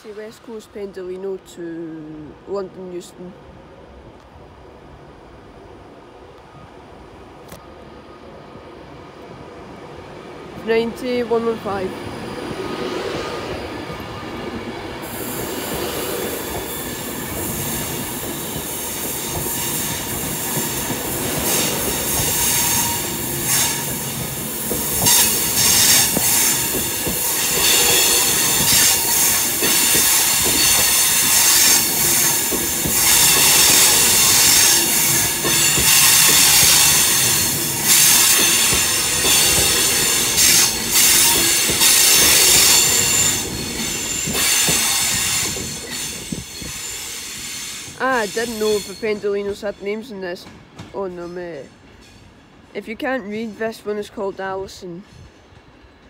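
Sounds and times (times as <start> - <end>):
electric train running: 11.4 - 49.0
high wheel squeal: 16.4 - 49.2.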